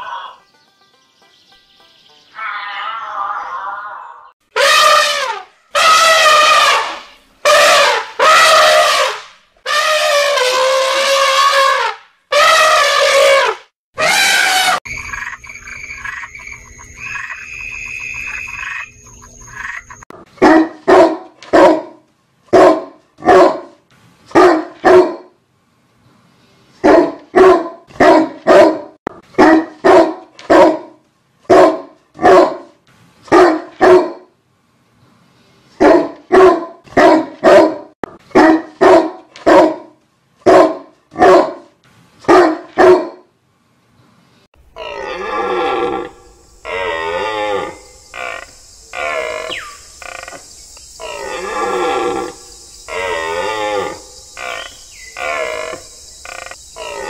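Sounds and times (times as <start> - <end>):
elephant trumpeting: 4.5 - 14.8
dog barking: 20.4 - 25.4, 26.8 - 32.7, 33.3 - 34.3, 35.8 - 41.7, 42.3 - 43.3.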